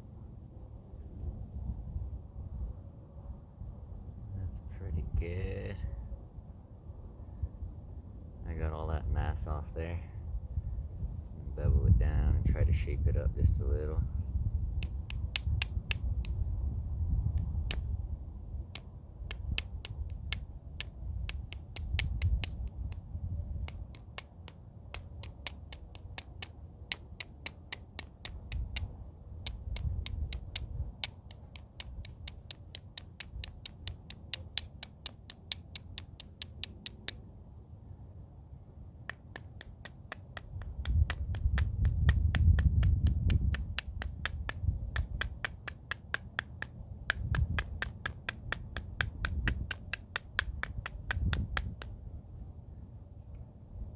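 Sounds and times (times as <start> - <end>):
low rumbling handling noise: 11.0 - 37.3, 39.1 - 53.9
bopper tapping stone edge: 14.8 - 16.5, 17.3 - 18.0, 18.7 - 37.2, 39.1 - 52.0.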